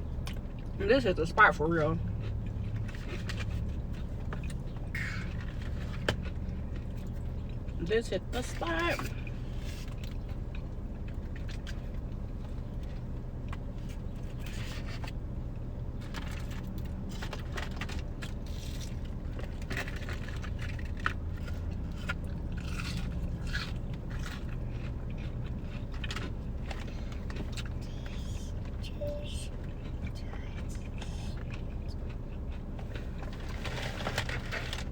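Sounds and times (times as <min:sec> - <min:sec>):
person chewing crunchy food: 0:02.0 - 0:07.8, 0:09.1 - 0:34.9
car interior hum: 0:21.8 - 0:33.7.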